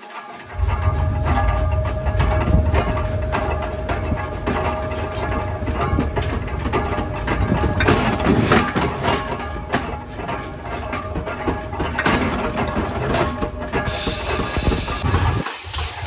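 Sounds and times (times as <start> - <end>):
knocks and clanks: 0.0 - 16.0
machinery humming: 0.4 - 15.5.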